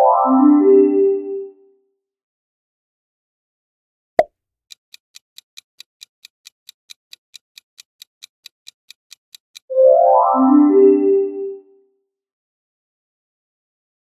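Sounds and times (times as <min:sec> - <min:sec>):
timer ticking: 0:04.7 - 0:09.7.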